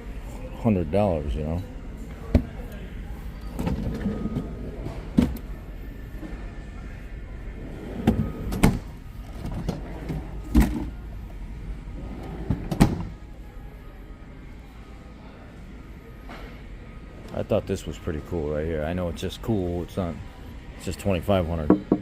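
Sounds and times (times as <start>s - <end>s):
refrigerator doors clunking: 7.9s - 10.9s, 12.1s - 13.2s.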